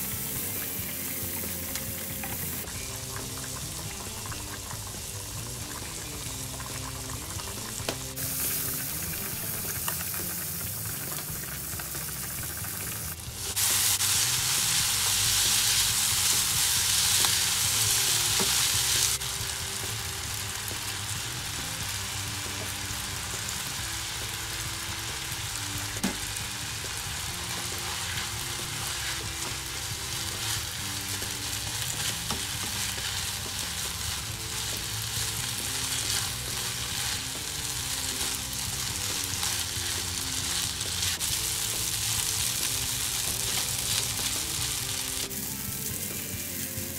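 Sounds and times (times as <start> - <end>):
food sizzling in a frying pan: 0.0 - 46.9
food being stirred and tossed: 27.5 - 46.0.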